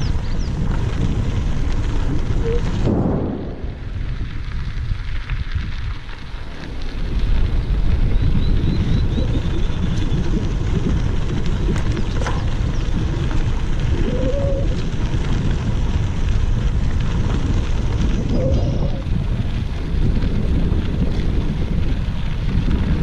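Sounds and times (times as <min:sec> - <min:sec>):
wind buffeting microphone: 0:00.0 - 0:23.0
bird trilling: 0:18.3 - 0:19.0.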